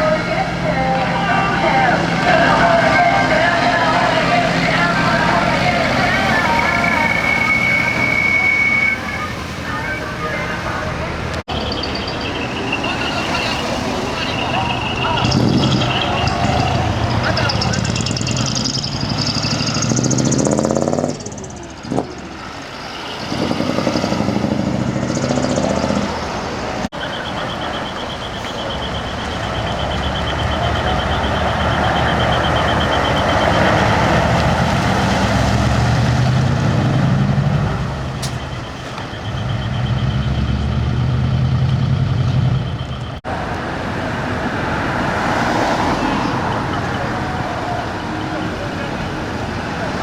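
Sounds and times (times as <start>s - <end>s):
truck diesel engines revving: 0.0s - 50.0s
high beeping tone: 11.5s - 26.2s, 27.0s - 34.3s.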